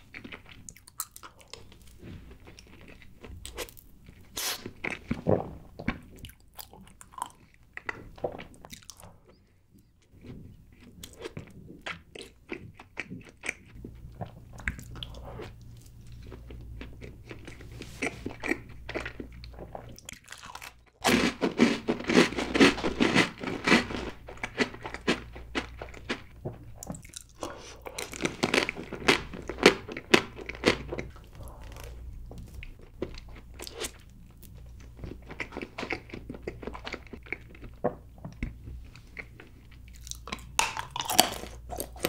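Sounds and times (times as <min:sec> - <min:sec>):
soft chewing: 0:00.0 - 0:42.0.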